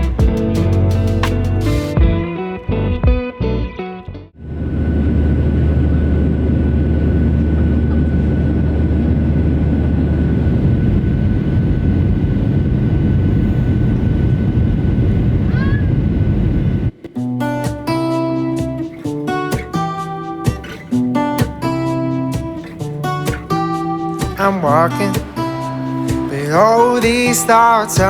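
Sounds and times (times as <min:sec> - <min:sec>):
engine rumbling: 0:04.5 - 0:17.1.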